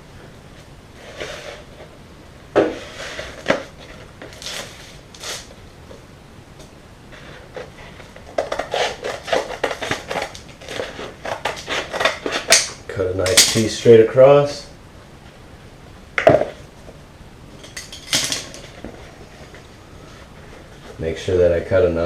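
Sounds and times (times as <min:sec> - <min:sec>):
tape rustling: 0:02.6 - 0:06.0, 0:06.6 - 0:13.8.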